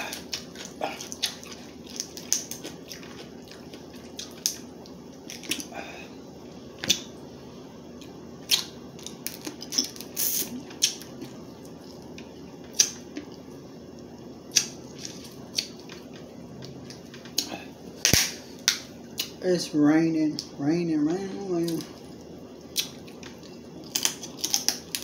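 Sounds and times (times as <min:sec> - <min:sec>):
eating sounds: 0:00.0 - 0:06.2
crab shells cracking: 0:23.9 - 0:25.0.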